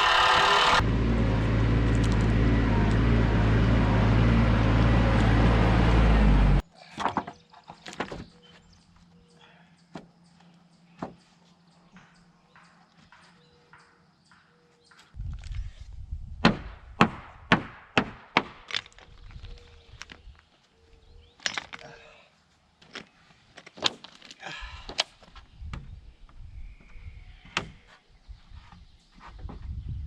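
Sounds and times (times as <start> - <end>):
hammer striking wood: 16.4 - 18.6.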